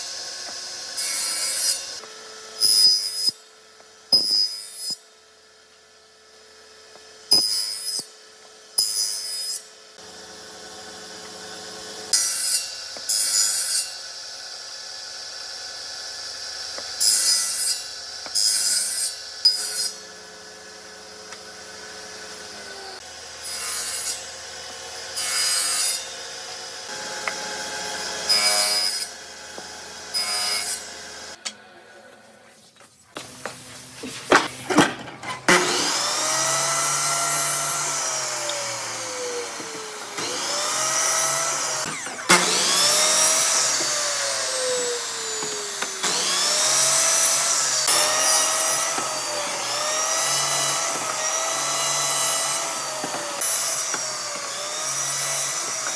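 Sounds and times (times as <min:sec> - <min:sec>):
power tool motor: 0:19.5 - 0:25.0, 0:33.2 - 0:55.9.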